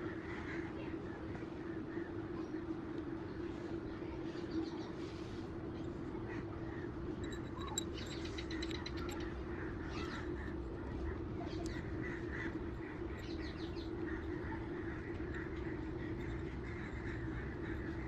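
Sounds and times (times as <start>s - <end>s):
steady low hum: 0.0s - 18.0s
birds chirping: 5.8s - 18.0s.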